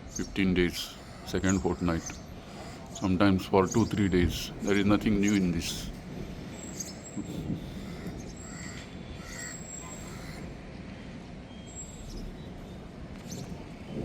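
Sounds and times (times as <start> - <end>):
outdoor background noise: 0.0 - 14.0
faint bird calls: 0.1 - 4.5, 6.6 - 10.6.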